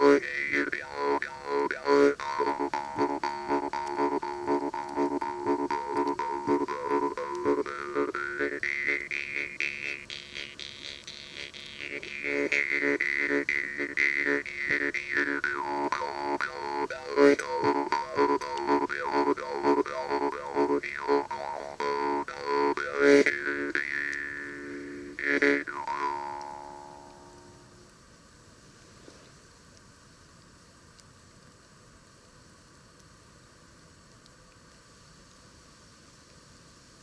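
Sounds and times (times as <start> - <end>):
jaw harp drone and plucked rhythm: 0.0 - 27.7.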